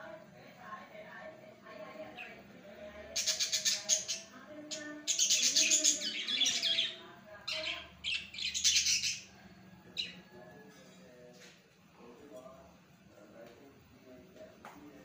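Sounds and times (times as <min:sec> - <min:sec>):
small birds chirping: 0:01.8 - 0:10.4.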